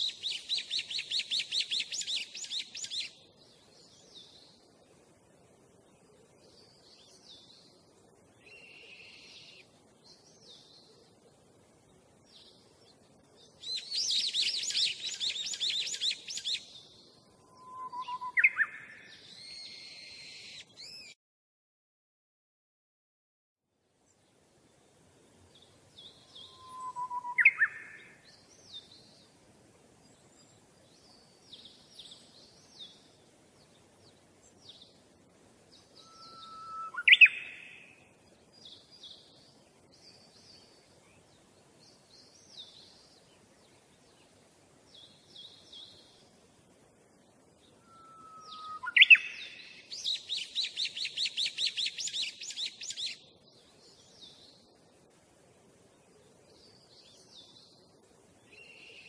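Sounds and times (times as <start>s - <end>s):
upward-sweeping bird calls: 0.0s - 3.2s, 13.6s - 16.8s, 17.4s - 21.2s, 26.1s - 28.3s, 35.9s - 38.0s, 47.7s - 53.2s
short high bird chirps: 17.6s - 21.2s, 47.8s - 53.2s.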